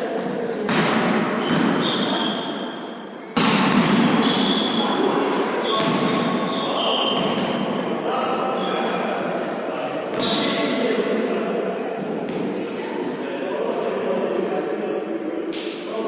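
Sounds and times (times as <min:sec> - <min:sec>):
voices echoing in a hall: 0:00.0 - 0:16.0
shoe squeaks on court: 0:01.4 - 0:02.8, 0:04.1 - 0:07.6, 0:10.2 - 0:10.6.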